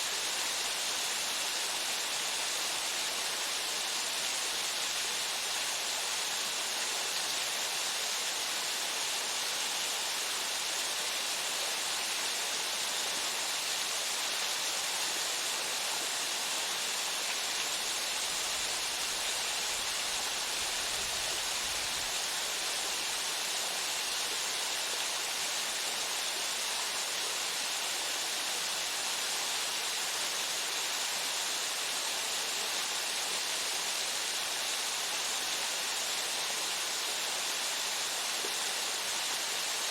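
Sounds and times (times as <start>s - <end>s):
waterfall rushing onto rock: 0.0s - 39.9s.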